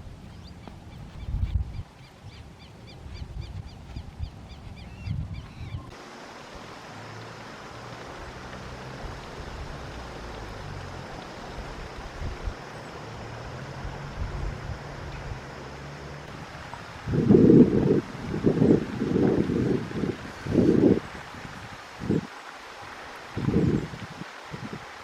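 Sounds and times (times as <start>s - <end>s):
steady rushing hiss: 0.0s - 25.0s
wind rumbling on microphone: 0.0s - 25.0s
bird whistling calls: 2.0s - 5.9s.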